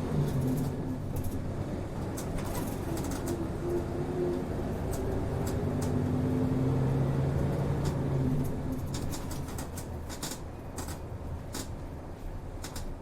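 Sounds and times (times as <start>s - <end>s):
bus engine running: 0.0s - 13.0s.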